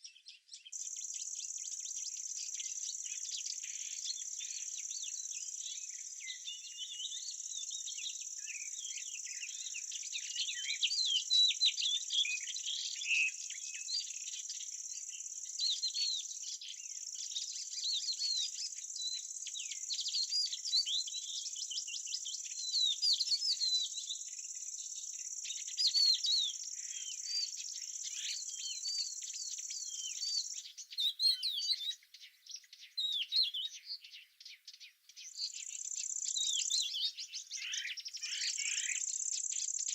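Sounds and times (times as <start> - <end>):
small birds chirping: 0.0 - 39.9
insects trilling: 37.5 - 39.9.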